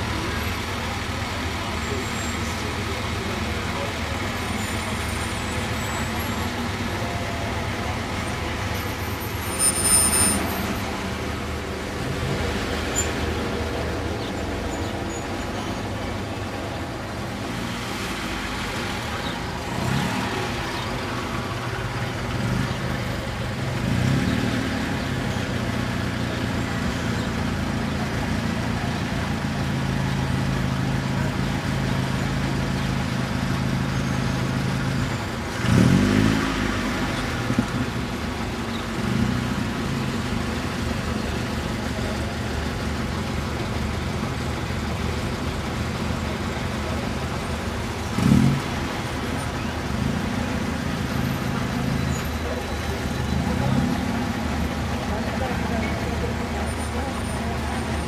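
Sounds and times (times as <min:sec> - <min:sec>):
car engines at low revs: 0:00.0 - 0:58.0.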